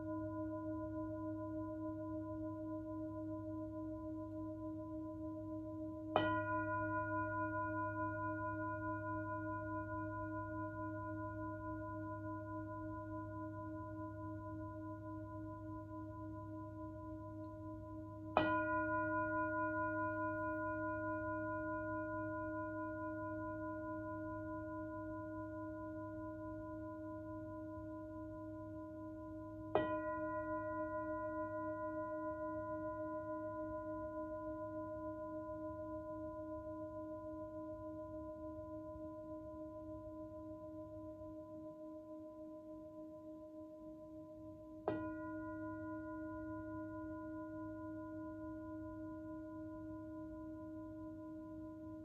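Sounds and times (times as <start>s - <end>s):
singing bowl ringing: 6.1s - 37.6s, 44.9s - 52.0s.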